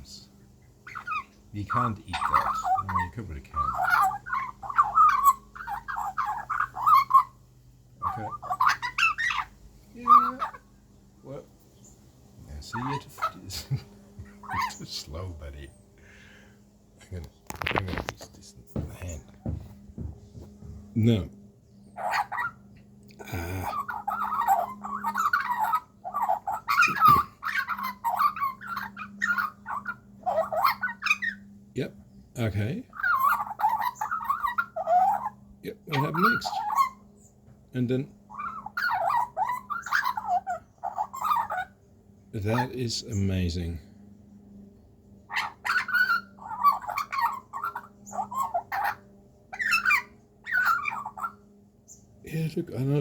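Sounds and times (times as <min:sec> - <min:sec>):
juvenile magpie chattering calls: 0:00.0 - 0:10.8, 0:12.6 - 0:15.2, 0:21.9 - 0:31.6, 0:32.4 - 0:43.7, 0:45.3 - 0:52.0.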